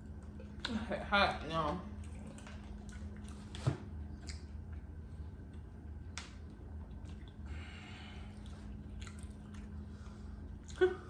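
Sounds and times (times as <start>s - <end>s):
handling and eating noises: 0.0s - 11.0s
low electrical hum: 0.0s - 11.0s.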